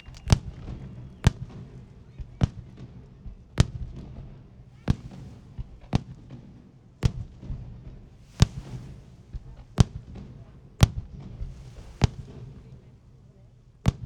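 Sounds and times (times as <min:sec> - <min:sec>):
firework shells bursting: 0:00.0 - 0:02.1, 0:08.1 - 0:13.3
firework hiss: 0:08.0 - 0:13.3.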